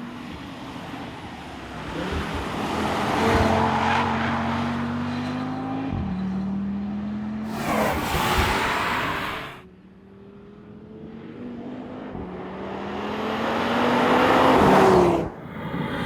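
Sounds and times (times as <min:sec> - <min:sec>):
car engine accelerating hard: 0:01.6 - 0:09.6
loud rush: 0:07.5 - 0:09.6.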